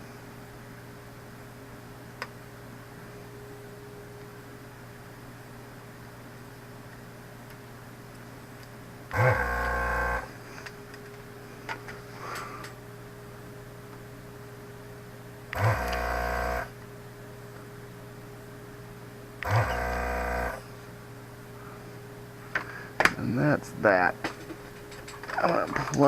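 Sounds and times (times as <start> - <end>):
faint steady hum: 0.0 - 26.0
desoldering pump buzzing: 9.1 - 10.8, 15.5 - 16.9, 19.4 - 20.9.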